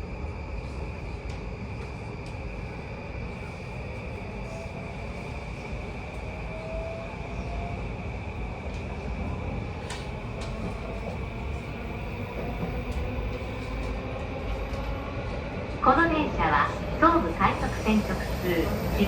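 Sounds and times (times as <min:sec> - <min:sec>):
wheel and track rumble: 0:08.3 - 0:19.0.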